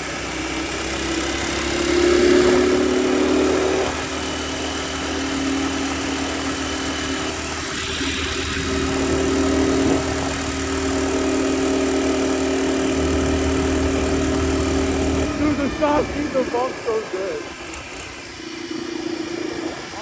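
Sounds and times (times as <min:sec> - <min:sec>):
mini bike engine running: 0:00.0 - 0:20.0.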